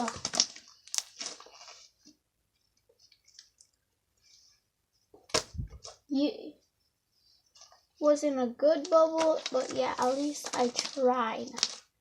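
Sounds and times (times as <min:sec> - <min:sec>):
slime squishing and crackling: 0:00.0 - 0:01.8, 0:08.7 - 0:12.0.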